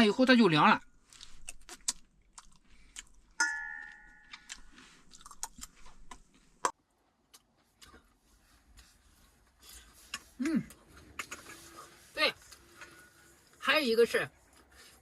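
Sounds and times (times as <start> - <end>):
ringing clink: 3.4 - 4.3.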